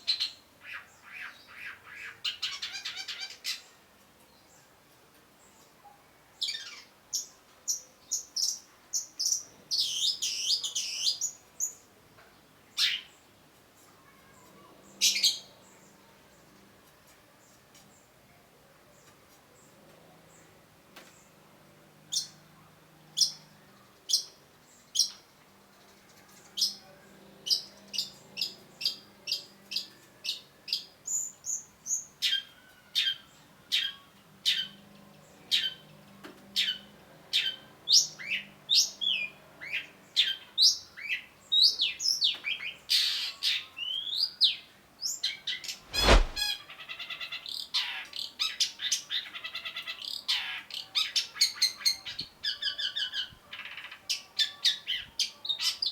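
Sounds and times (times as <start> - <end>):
loud thump: 45.9 - 46.4.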